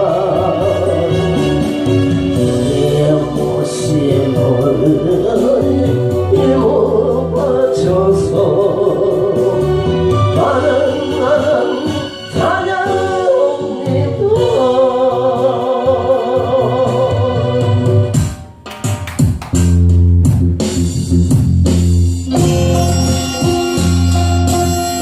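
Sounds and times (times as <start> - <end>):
person singing with vibrato: 0.0 - 18.1
instrumental accompaniment: 0.0 - 25.0.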